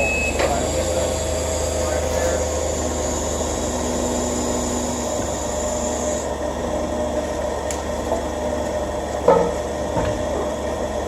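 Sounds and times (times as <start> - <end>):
forklift engine idling: 0.0 - 11.0
clunk: 9.2 - 10.5.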